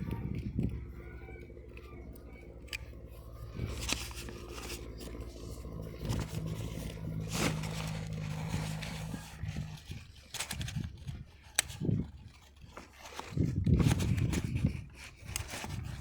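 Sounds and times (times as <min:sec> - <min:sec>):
engine running steadily: 0:00.0 - 0:16.0
scraping and clicking handling noises: 0:00.0 - 0:16.0.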